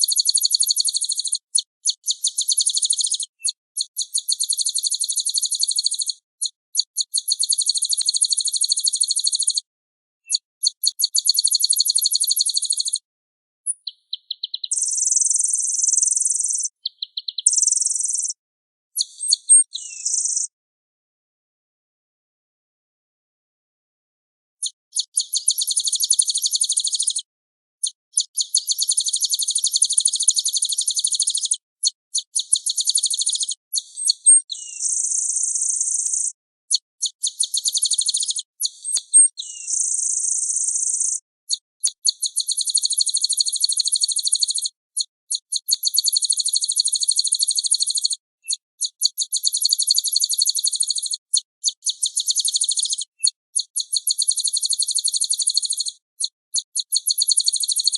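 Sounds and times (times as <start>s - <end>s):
songbird trilling: 13.8s - 18.3s, 19.2s - 20.4s, 32.5s - 36.3s, 37.5s - 41.1s, 47.0s - 51.2s, 52.0s - 55.9s.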